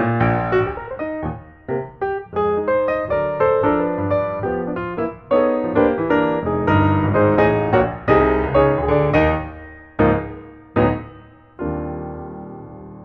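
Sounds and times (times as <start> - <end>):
piano chords ringing: 0.0 - 13.0
quick piano notes: 0.0 - 13.0.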